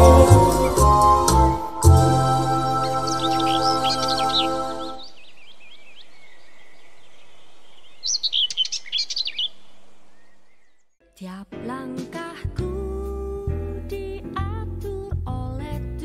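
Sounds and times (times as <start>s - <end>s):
outdoor ambience hiss: 0.0s - 11.0s
birds chirping: 2.2s - 11.0s.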